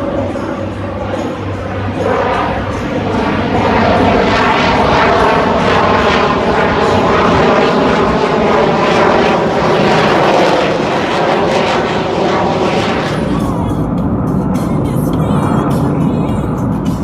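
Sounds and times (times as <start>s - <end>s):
propeller airplane engine: 0.0s - 17.0s.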